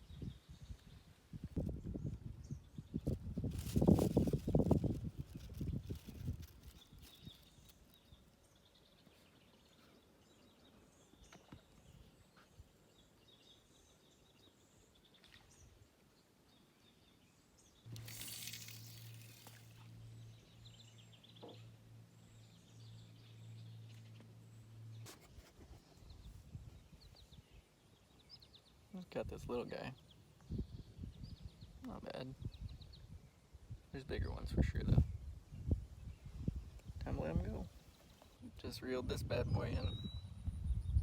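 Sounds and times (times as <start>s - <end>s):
brief rustle: 17.9s - 20.0s
faint bird chirps: 34.2s - 41.0s.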